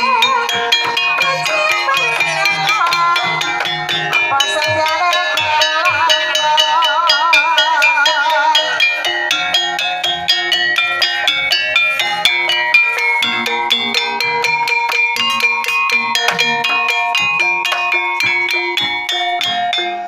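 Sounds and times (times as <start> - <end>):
woman singing with vibrato: 0.0 - 9.5
gamelan percussion: 0.0 - 20.0.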